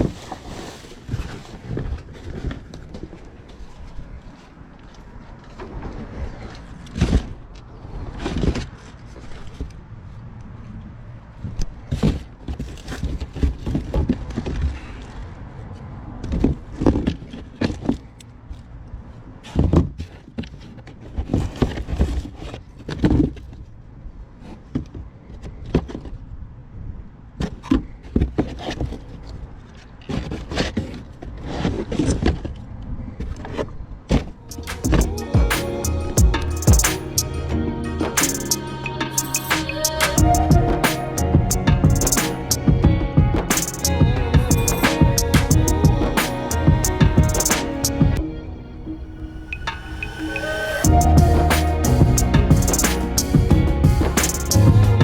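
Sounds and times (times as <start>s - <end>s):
steady low rumble: 34.4s - 55.0s.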